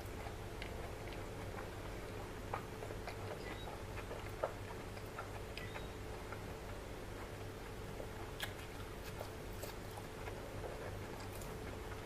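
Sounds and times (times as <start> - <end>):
wet chewing: 0.0 - 12.0
mouth clicks and smacks: 8.0 - 9.8.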